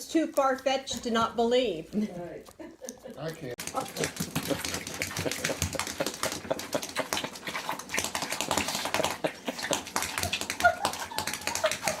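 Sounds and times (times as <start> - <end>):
dog yipping: 10.2 - 12.0.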